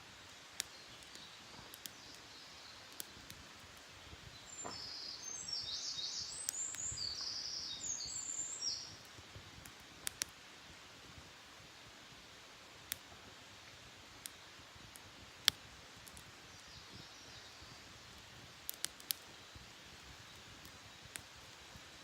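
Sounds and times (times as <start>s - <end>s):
campfire popping: 0.1s - 22.0s
songbird twittering: 4.3s - 9.0s.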